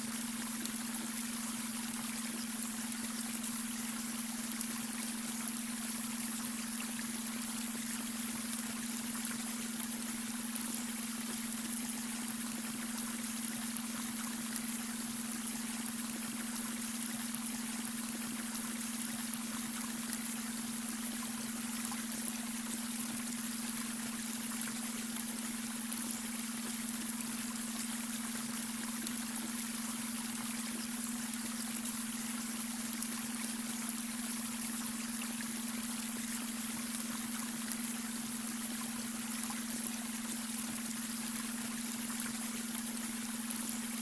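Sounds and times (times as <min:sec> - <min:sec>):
brook water flowing: 0:00.0 - 0:44.0.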